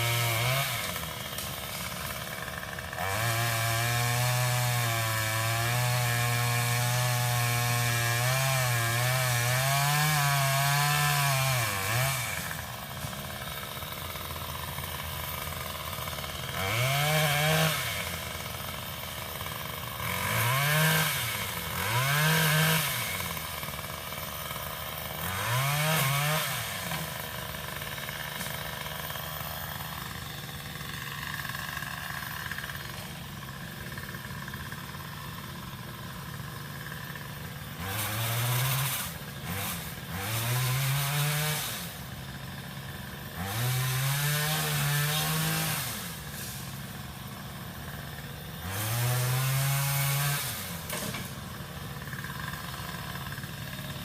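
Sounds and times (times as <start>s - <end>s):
pole saw engine running: 0.0s - 54.0s.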